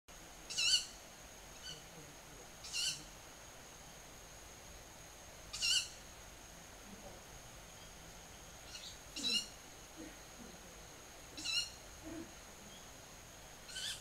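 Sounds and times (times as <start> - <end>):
high quavering bird calls: 0.5 - 1.0, 2.6 - 3.1, 5.5 - 6.0, 8.6 - 10.2, 11.4 - 12.9, 13.6 - 14.0.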